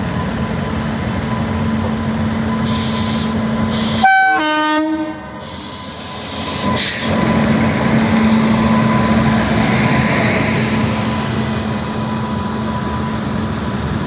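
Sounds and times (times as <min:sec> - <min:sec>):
train rumbling past: 0:00.0 - 0:14.0
locomotive horn: 0:03.9 - 0:05.4.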